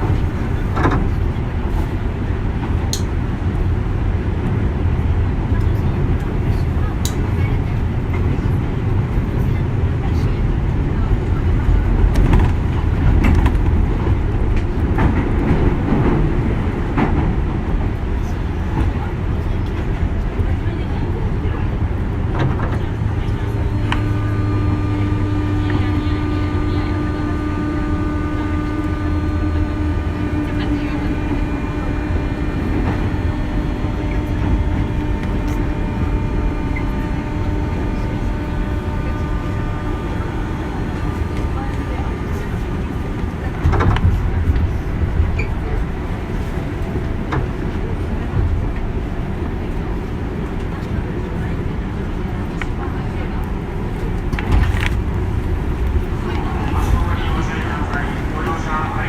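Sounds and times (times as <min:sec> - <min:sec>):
train interior rumble: 0:00.0 - 0:59.0
electrical whine from traction motors: 0:21.4 - 0:59.0.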